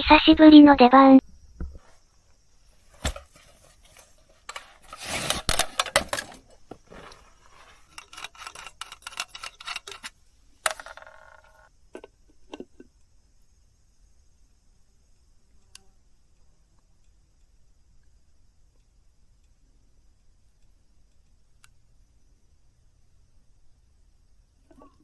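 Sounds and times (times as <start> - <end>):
rustling: 1.6 - 11.7
small objects clicking and tapping: 2.9 - 13.1.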